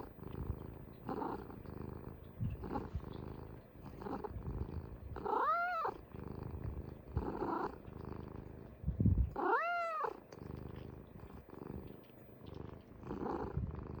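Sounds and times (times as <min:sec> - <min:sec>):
cat purring: 0:00.0 - 0:14.0
cat meow: 0:05.3 - 0:06.0, 0:09.3 - 0:10.2.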